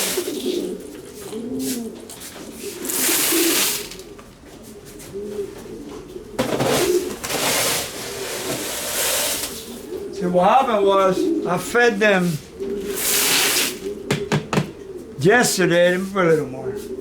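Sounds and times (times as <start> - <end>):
pigeons cooing: 0.0 - 17.0
dry seed rustling in a bucket: 12.2 - 13.8.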